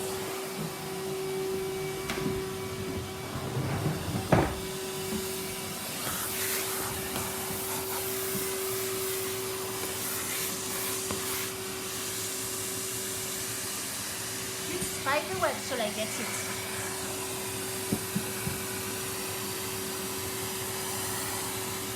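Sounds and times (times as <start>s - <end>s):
vacuum cleaner humming: 0.0s - 21.9s
nozzle sucking air hiss: 5.0s - 21.9s.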